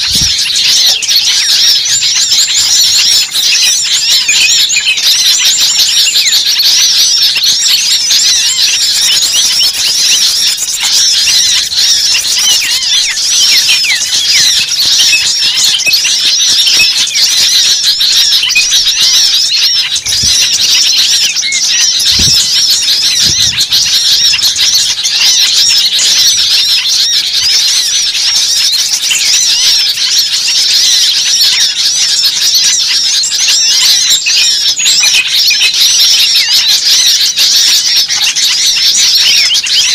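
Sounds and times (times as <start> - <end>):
small birds chirping chorus: 0.0 - 39.9.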